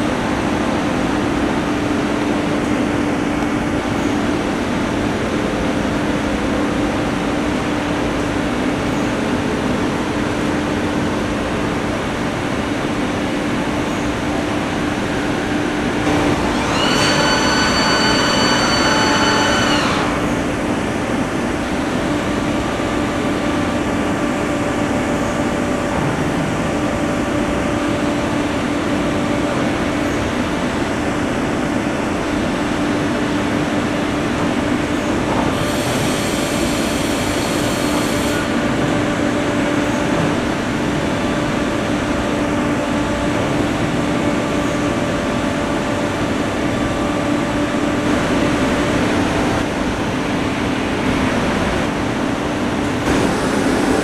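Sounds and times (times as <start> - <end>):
milling machine humming: 13.4 - 25.9, 45.4 - 54.0.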